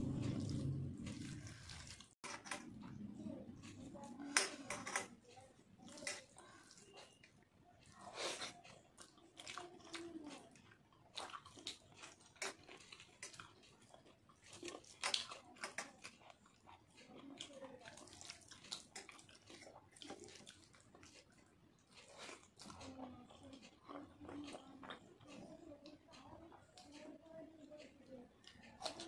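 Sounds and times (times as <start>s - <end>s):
chewing with wet mouth clicks: 0.1s - 29.0s
wet squishing of rice by hand: 5.2s - 27.2s.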